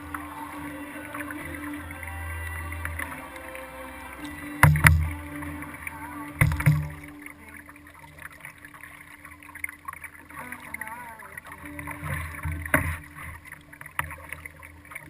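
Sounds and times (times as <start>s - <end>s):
paddle knocking kayak hull: 0.0s - 7.1s.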